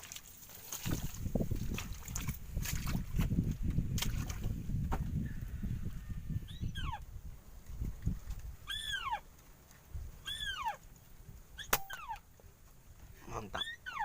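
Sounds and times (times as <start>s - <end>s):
bird plaintive call: 11.6s - 12.2s, 13.6s - 14.0s.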